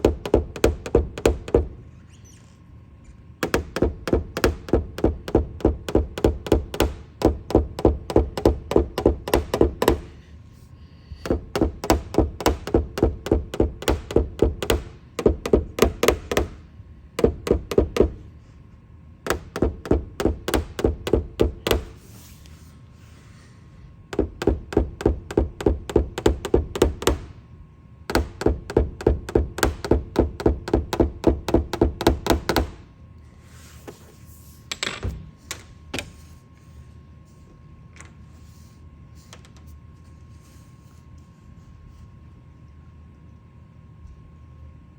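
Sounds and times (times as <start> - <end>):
hammer tapping on car roof: 0.0 - 1.8, 3.4 - 10.2, 11.2 - 16.6, 17.2 - 18.2, 19.2 - 22.0, 24.1 - 27.4, 28.1 - 32.9.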